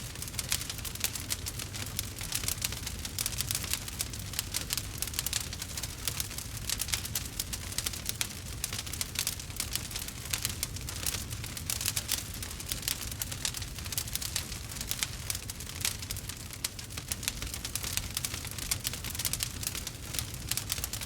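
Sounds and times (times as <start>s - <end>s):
low rumble of flames: 0.0s - 21.0s
wood fire crackling and popping: 0.0s - 21.0s.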